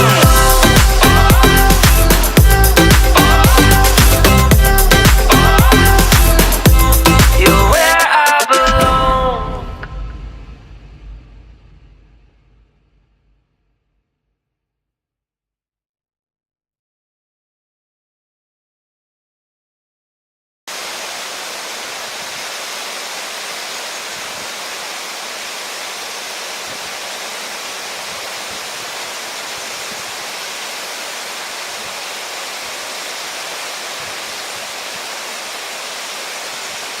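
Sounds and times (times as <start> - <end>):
running water rushing: 0.0 - 8.0, 20.7 - 37.0.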